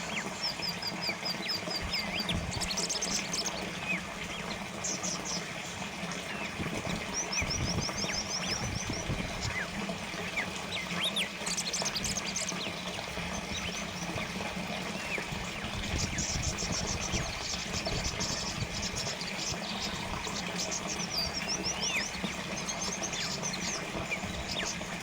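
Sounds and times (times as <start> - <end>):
small birds chirping: 0.0 - 25.0
water trickling: 0.0 - 25.0
bird trill: 15.1 - 25.0.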